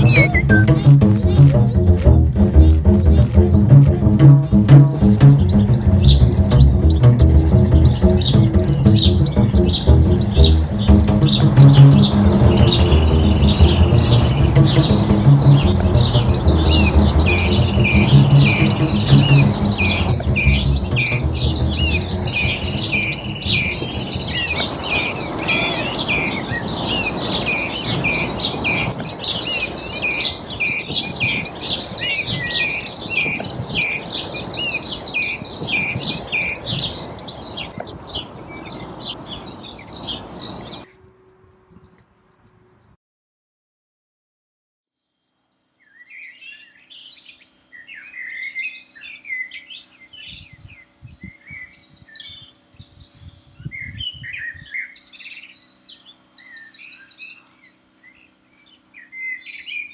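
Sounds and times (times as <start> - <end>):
low music notes: 0.0 - 24.8
songbirds chirping and trilling: 0.0 - 43.0, 45.5 - 59.9.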